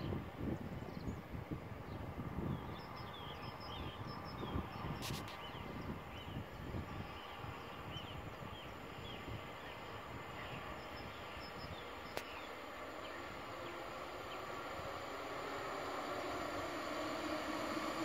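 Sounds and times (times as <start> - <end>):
low outdoor rumble: 0.0 - 18.0
small birds chirping: 1.9 - 14.7.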